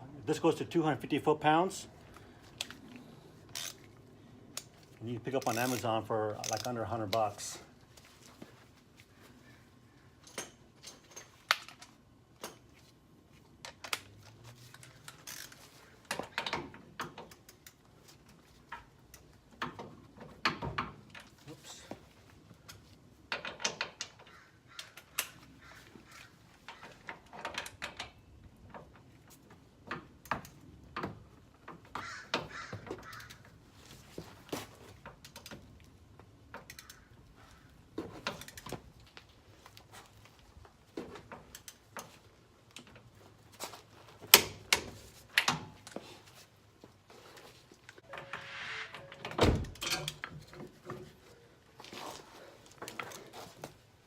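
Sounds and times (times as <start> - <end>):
ratchet and torque wrench clicking: 3.5 - 3.8.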